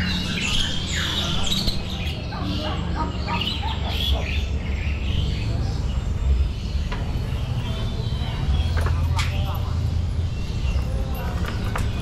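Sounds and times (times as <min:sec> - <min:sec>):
caged birds chirping and whistling: 0:00.0 - 0:12.0.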